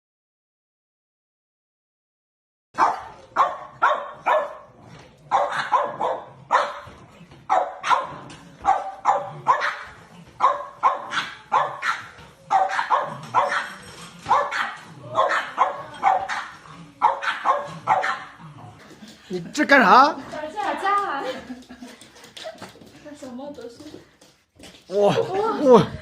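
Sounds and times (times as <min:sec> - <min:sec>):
dog barking: 0:02.8 - 0:18.4.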